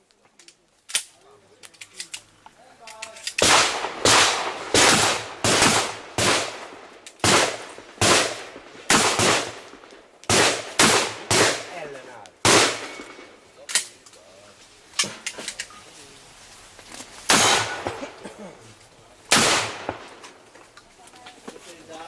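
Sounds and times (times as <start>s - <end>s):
shotgun shots: 3.4s - 13.4s, 17.3s - 18.2s, 19.3s - 20.4s.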